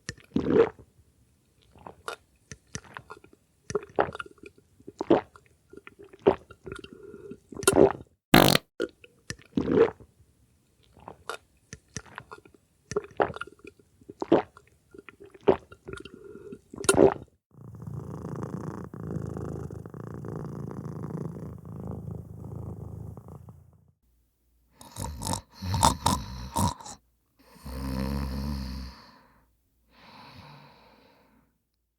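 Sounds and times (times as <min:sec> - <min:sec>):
cat purring: 0:17.6 - 0:23.9.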